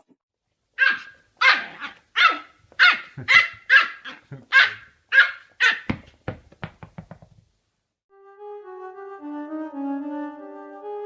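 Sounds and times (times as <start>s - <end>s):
dog barking: 0.8s - 5.9s.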